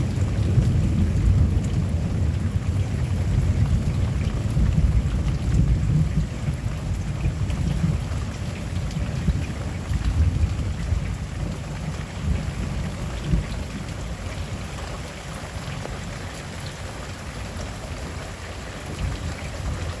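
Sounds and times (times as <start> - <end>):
rolling thunder: 0.0 - 14.7
steady rain: 0.0 - 20.0.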